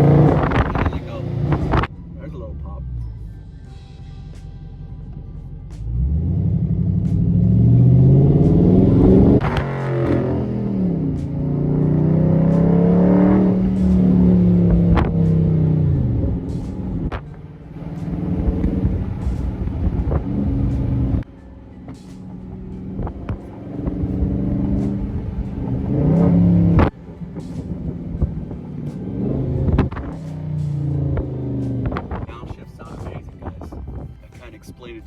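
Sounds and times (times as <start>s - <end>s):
exhaust pops and cracks: 0.0s - 1.9s, 9.4s - 10.3s, 13.6s - 15.5s, 26.2s - 33.8s
car exhaust revving: 0.0s - 2.2s, 4.2s - 33.7s.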